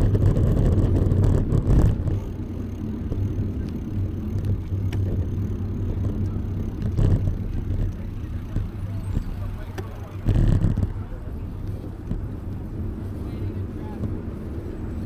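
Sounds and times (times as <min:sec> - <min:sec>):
bicycle tyre road noise: 0:00.0 - 0:15.0
wind on microphone: 0:00.0 - 0:15.0
faint clicks: 0:03.2 - 0:05.2.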